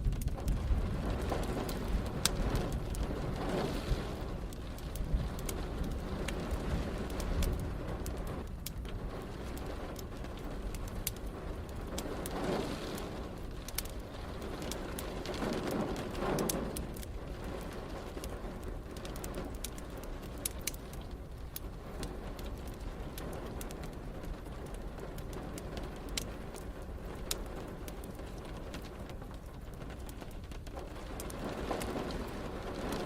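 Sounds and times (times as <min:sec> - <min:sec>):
distant thunder rumbling: 0:00.0 - 0:19.5
rain: 0:00.0 - 0:33.0
wood fire crackling and popping: 0:00.0 - 0:33.0.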